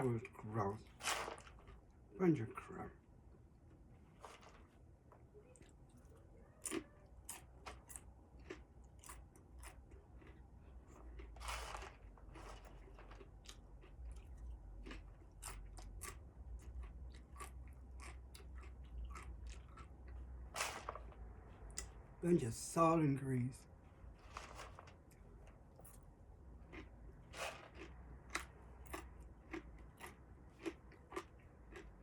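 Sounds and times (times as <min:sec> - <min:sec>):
person chewing crunchy snack: 0:00.8 - 0:02.0, 0:05.6 - 0:22.0, 0:24.2 - 0:32.0.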